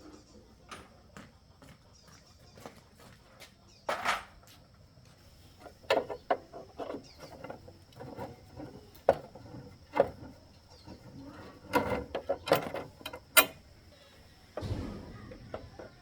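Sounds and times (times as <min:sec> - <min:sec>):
metal tools rattling and clinking: 0:05.6 - 0:13.8.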